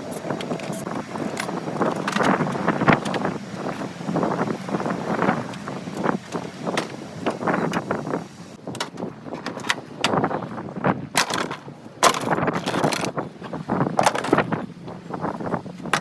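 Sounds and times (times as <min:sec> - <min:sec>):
knocks and clatter of hand tools: 0:11.2 - 0:13.2, 0:14.0 - 0:14.5.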